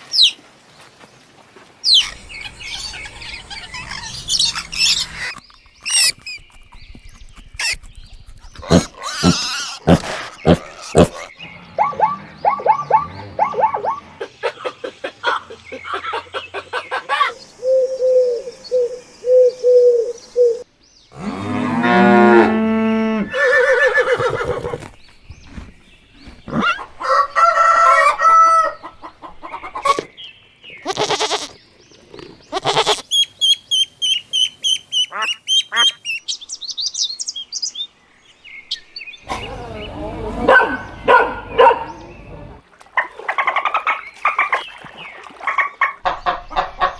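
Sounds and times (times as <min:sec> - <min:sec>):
cattle mooing: 0:21.2 - 0:23.4.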